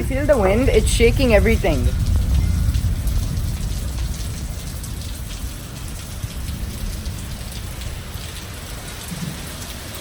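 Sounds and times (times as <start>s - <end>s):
rain falling and spattering: 0.0s - 10.0s
wind gusting over microphone: 0.0s - 10.0s.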